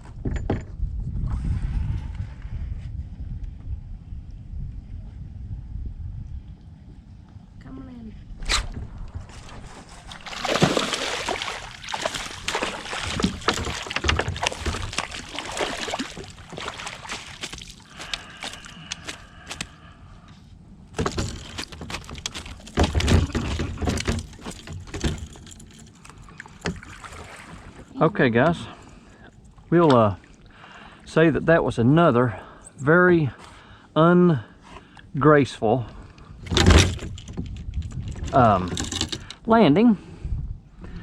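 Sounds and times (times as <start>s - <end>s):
water splashing and sloshing: 8.4s - 19.9s, 20.8s - 31.1s, 36.0s - 39.4s.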